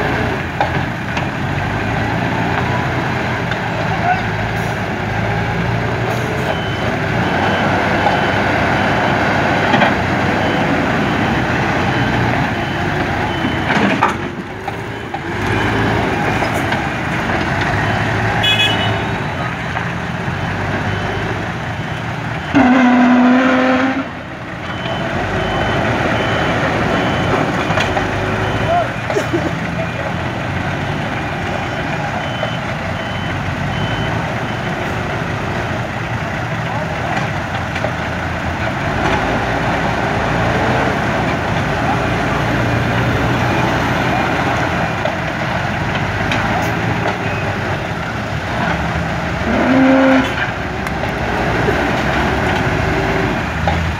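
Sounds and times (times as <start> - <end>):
diesel engine running under load: 0.0 - 53.9
reversing alarm beeping: 6.3 - 16.6, 20.2 - 23.1, 24.6 - 29.1, 31.2 - 35.0.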